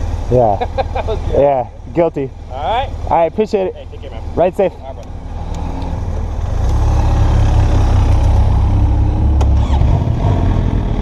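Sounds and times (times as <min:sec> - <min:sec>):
motorcycle pulling away: 0:05.1 - 0:11.0.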